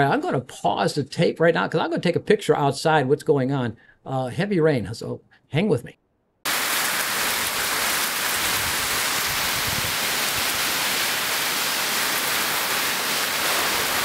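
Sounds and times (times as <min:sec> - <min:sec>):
heavy rain on foliage: 0:06.5 - 0:14.0.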